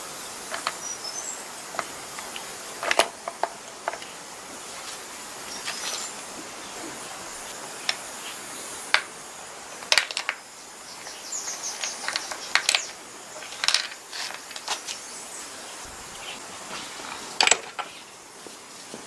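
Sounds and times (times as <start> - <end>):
small tools clicking and clinking: 0.5 - 0.8, 1.7 - 4.1, 9.8 - 10.5, 11.5 - 15.0, 17.0 - 18.0.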